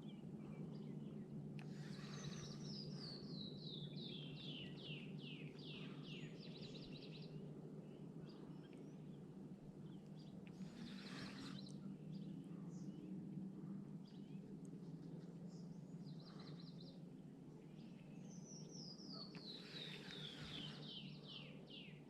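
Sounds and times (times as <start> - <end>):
songbird singing: 0.0 - 22.0
steady low hum: 0.0 - 22.0.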